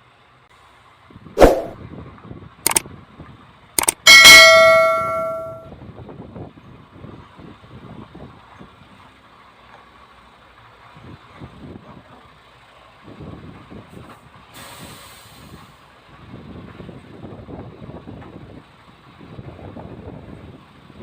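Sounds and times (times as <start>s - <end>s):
air brake hissing: 14.6s - 15.7s.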